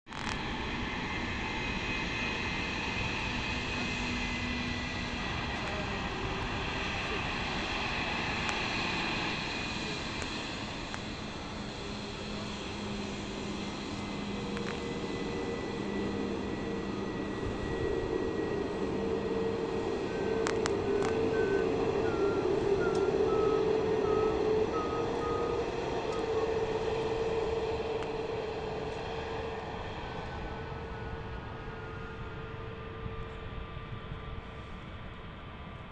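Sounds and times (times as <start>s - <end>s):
jet engines humming: 0.2s - 35.9s.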